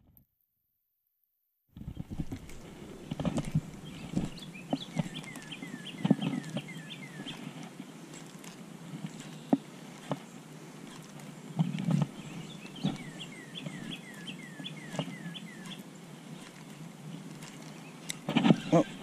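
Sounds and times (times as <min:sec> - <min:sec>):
songbird whistling: 0:03.8 - 0:07.5, 0:12.2 - 0:15.8.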